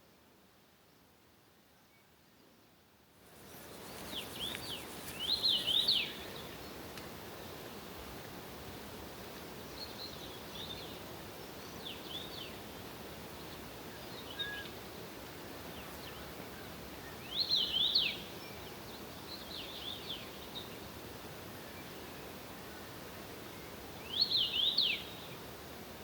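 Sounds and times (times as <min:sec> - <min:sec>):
outdoor background hiss: 0:00.0 - 0:26.0
songbird chirping: 0:03.3 - 0:07.0, 0:15.6 - 0:20.9.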